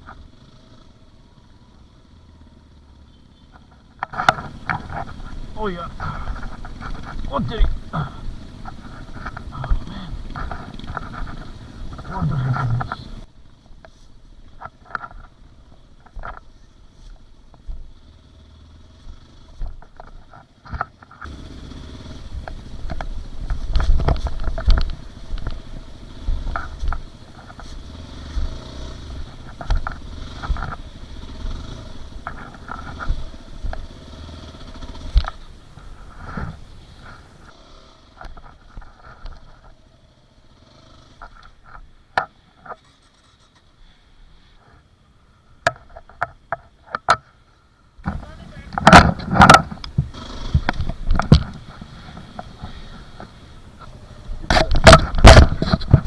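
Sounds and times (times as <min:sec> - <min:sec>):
dirt bike engine running: 0:00.0 - 0:46.5, 0:48.0 - 0:56.0
knocks and clatter from bike: 0:03.1 - 0:18.2, 0:18.8 - 0:39.9, 0:40.5 - 0:43.8, 0:45.6 - 0:47.4, 0:48.0 - 0:56.0.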